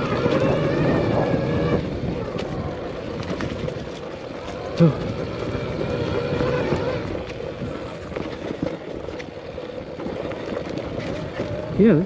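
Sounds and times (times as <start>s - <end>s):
electric motor whine: 0.0s - 9.2s
bike rattling: 0.0s - 12.0s.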